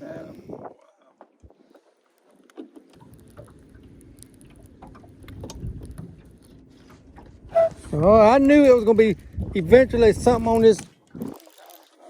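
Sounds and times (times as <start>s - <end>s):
wind gusting on microphone: 5.3s - 6.2s, 7.4s - 11.4s.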